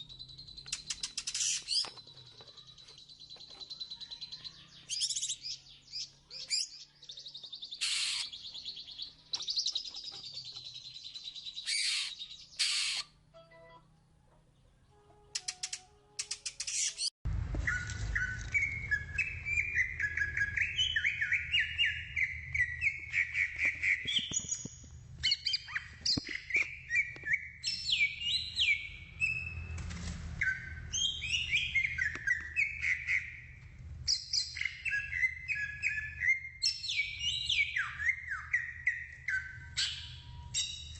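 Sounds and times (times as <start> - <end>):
bird singing whistled phrases: 16.6 - 24.6, 25.2 - 29.6, 30.4 - 33.4, 34.1 - 40.9.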